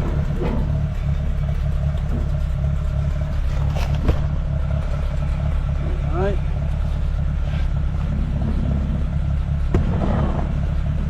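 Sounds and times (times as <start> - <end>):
engine knock: 0.0 - 11.0
tractor engine running: 0.0 - 11.0.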